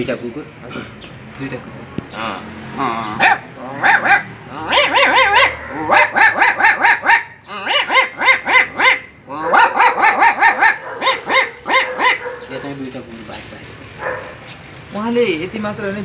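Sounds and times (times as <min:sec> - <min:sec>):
man imitating dogs barking: 0:02.8 - 0:12.9.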